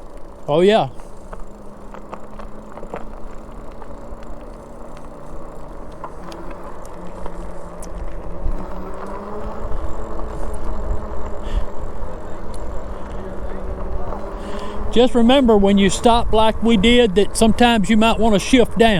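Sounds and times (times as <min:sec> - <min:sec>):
electric motor whining: 0:00.0 - 0:18.9
wind rumble on microphone: 0:07.9 - 0:18.9.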